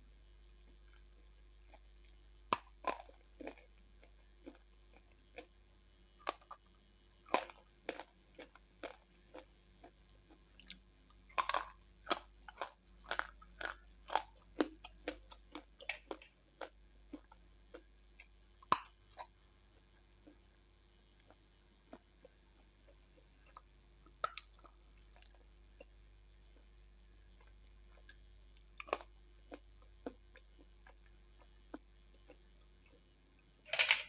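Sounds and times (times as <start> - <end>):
pencil being chewed crunching: 7.3 - 20.4.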